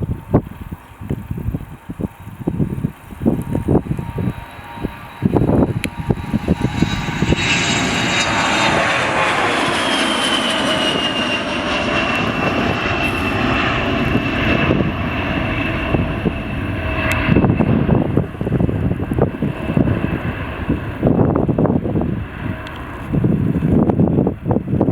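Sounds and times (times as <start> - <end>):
low buffeting: 0.0 - 24.9
jet aircraft flying past: 2.0 - 24.9.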